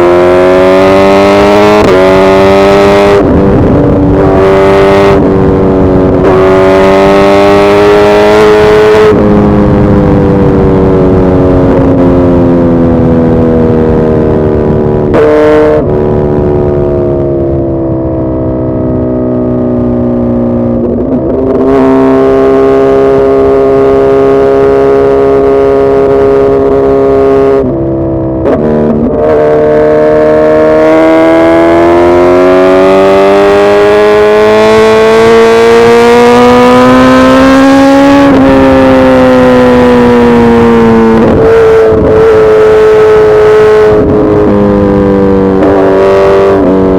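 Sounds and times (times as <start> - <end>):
motorcycle engine running under load: 33.7 - 46.9.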